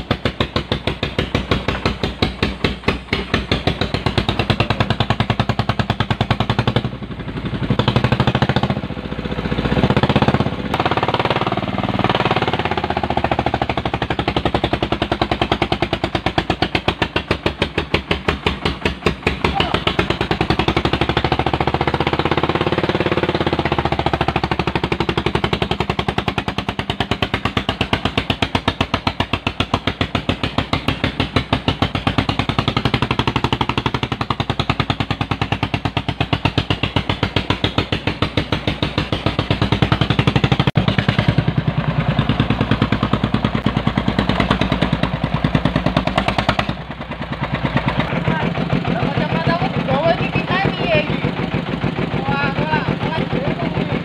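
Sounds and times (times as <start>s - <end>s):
tractor diesel engine chugging: 0.0s - 54.0s.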